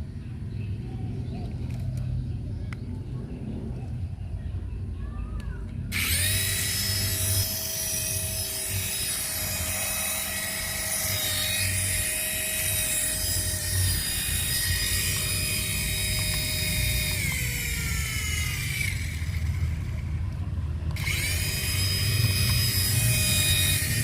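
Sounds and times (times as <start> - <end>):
toy electric motor whining: 5.9 - 24.0.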